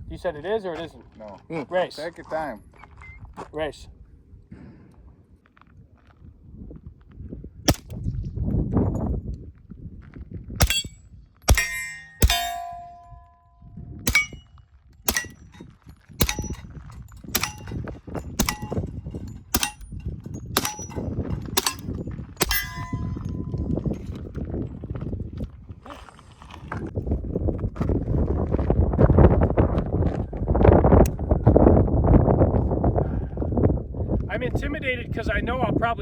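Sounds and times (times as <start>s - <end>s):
gunshots hitting steel targets: 7.7s - 8.0s, 10.6s - 13.4s, 14.0s - 23.6s
steel plate ringing clang: 10.6s - 14.5s, 15.1s - 23.6s.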